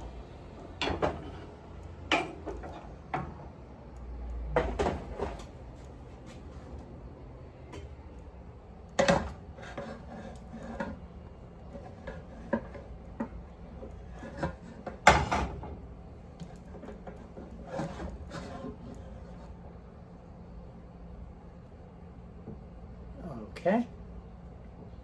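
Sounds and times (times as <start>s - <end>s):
cookware and utensils clattering: 0.8s - 3.4s, 11.7s - 15.8s.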